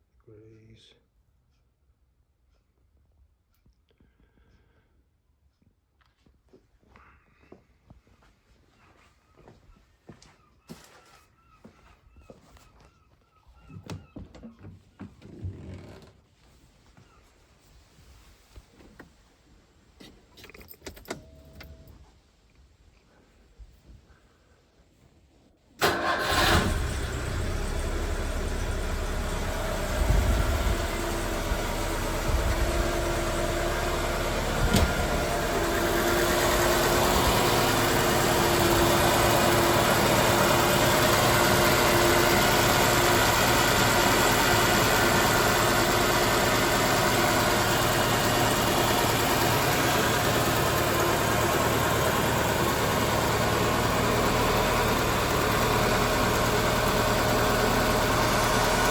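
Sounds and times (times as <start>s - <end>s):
car engine starting and idling: 25.8s - 58.9s.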